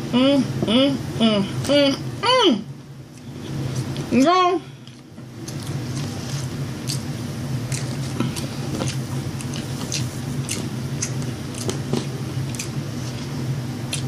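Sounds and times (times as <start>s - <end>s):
low steady hum: 0.0s - 14.0s
person chewing food: 4.8s - 14.0s.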